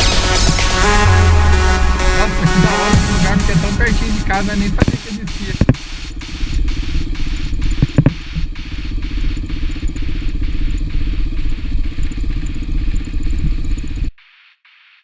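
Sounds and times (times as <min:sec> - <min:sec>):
motorcycle engine running: 0:00.0 - 0:14.2
faint repeating pulse: 0:00.0 - 0:14.6
wind noise on microphone: 0:07.0 - 0:08.5.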